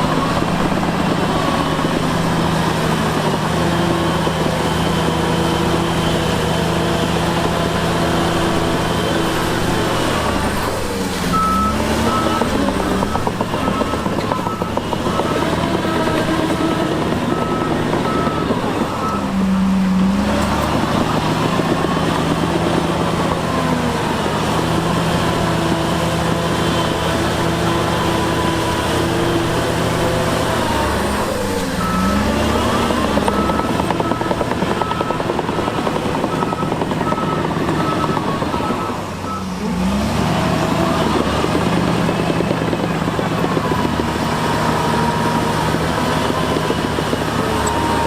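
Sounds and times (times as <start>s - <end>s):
diesel engine running: 0.0s - 48.0s
reversing alarm beeping: 11.3s - 22.3s, 28.0s - 41.7s.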